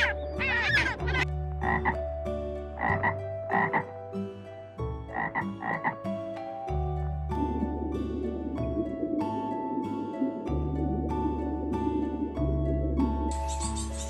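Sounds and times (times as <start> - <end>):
frog croaking: 0.0 - 2.0, 2.8 - 4.0, 5.1 - 6.0.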